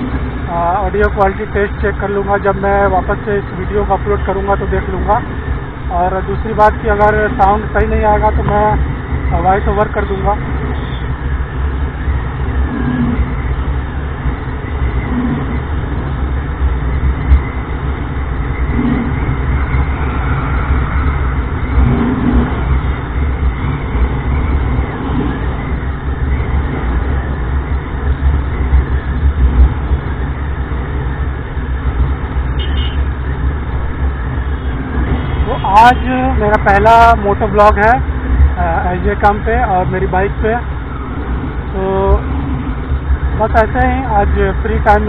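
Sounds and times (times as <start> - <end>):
motorcycle engine running: 0.0 - 45.0
road and wind noise: 0.0 - 45.0.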